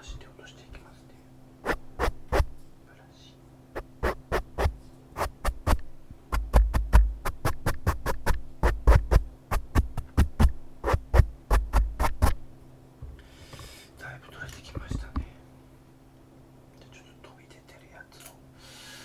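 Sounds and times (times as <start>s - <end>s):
faint low hum: 0.0s - 18.6s
taps with low thumps: 3.8s - 12.4s.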